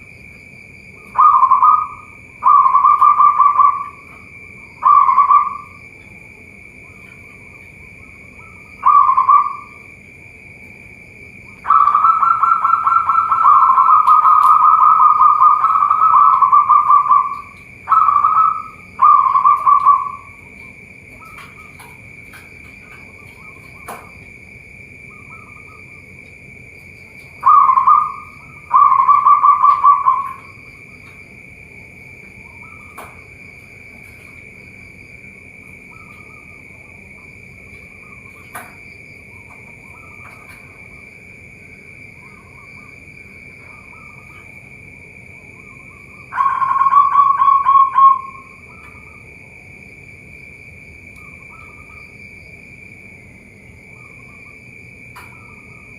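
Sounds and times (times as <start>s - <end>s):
doves cooing: 0.8s - 49.4s
faint bird chirps: 0.9s - 9.9s, 11.5s - 24.2s, 25.0s - 26.2s, 27.2s - 31.2s, 32.4s - 33.3s, 35.8s - 41.0s, 43.6s - 44.5s, 45.4s - 49.3s, 51.1s - 52.2s
high-pitched drone: 1.0s - 5.9s, 6.8s - 9.9s, 11.5s - 21.5s, 27.4s - 30.8s, 45.4s - 49.2s.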